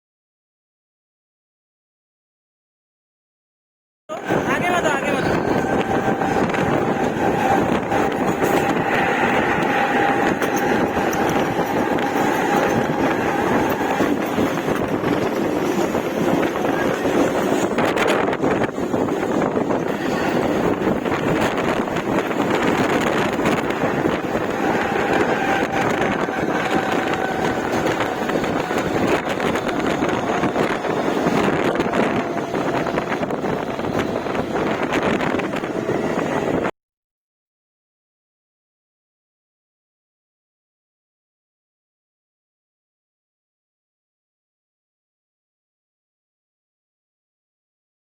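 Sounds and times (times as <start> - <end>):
train wheels rumbling on track: 4.1 - 36.7
wind buffeting microphone: 4.1 - 36.7.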